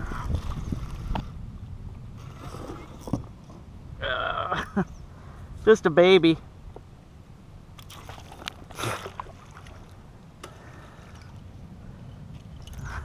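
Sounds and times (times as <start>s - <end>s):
water splash: 7.8s - 10.0s.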